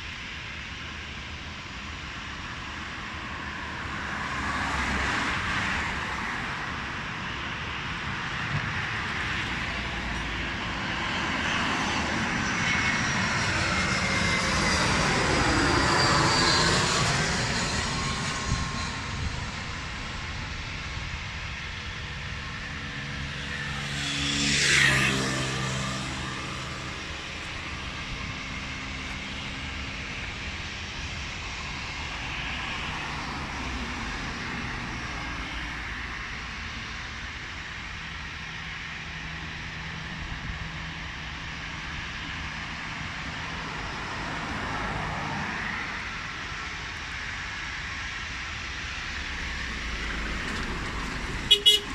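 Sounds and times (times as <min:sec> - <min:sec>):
aircraft engines rumbling: 0:00.0 - 0:51.9
road vehicle passing: 0:03.8 - 0:06.8, 0:22.4 - 0:32.0, 0:42.6 - 0:46.0.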